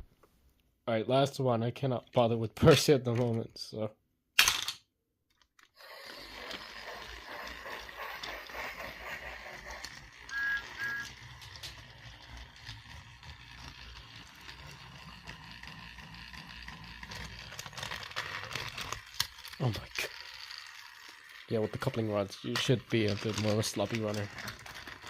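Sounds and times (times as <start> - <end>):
toy train motor running: 5.6 - 25.0
short high tones: 10.3 - 11.2.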